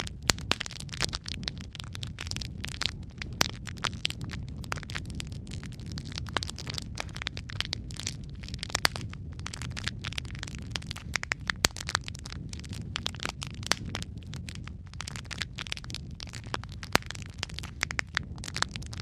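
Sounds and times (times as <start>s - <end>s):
fire crackling and popping: 0.0s - 19.0s
low rumble of flames: 0.0s - 19.0s.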